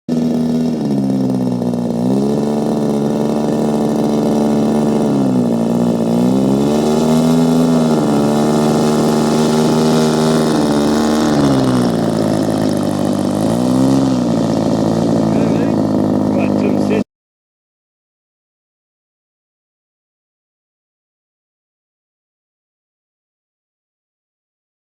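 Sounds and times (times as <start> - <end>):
model aircraft engine running: 0.1 - 17.0.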